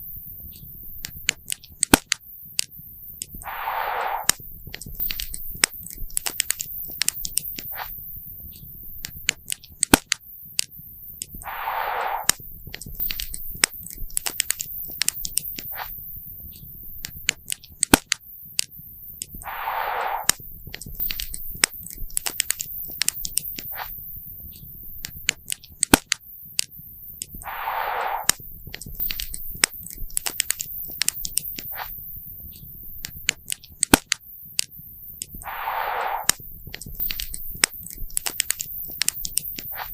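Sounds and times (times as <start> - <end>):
fire pops and snaps: 1.0 - 8.0, 9.0 - 16.0, 17.0 - 24.0, 25.0 - 32.0, 33.0 - 39.9
hiss burst: 3.4 - 4.4, 11.4 - 12.4, 19.4 - 20.4, 27.4 - 28.5, 35.4 - 36.5.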